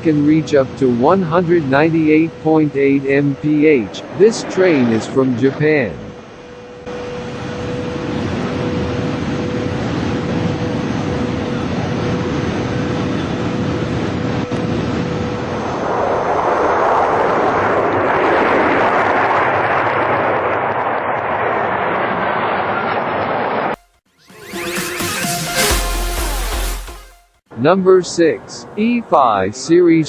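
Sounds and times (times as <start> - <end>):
high-speed train rushing: 0.0 - 23.8.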